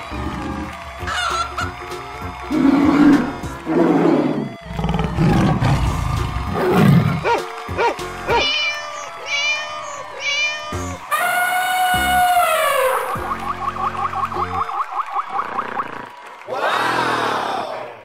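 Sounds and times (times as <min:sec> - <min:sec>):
children's music: 0:00.0 - 0:11.1
cartoon big cat roar: 0:02.5 - 0:07.1
cat meows: 0:08.3 - 0:12.8.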